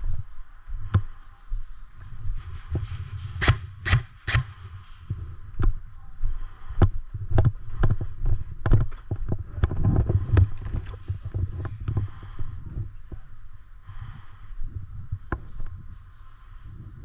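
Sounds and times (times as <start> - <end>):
footsteps with thuds and scuffs: 0.0 - 12.2
sharp snaps: 3.4 - 4.6.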